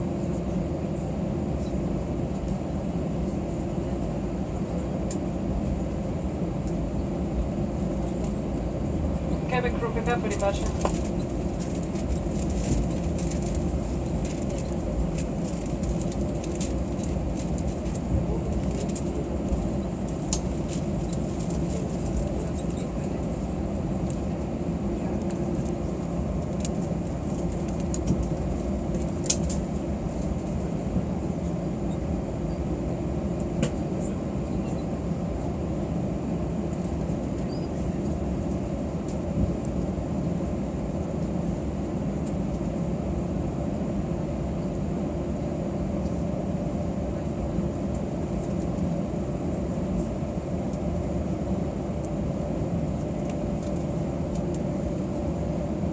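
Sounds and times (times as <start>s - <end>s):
airplane cabin engine rumble: 0.0s - 55.9s.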